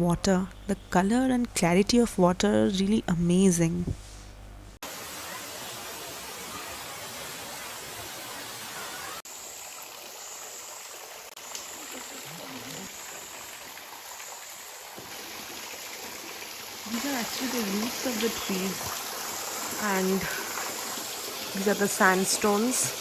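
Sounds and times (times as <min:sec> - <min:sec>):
stream and waterfall rushing: 0:04.8 - 0:23.0.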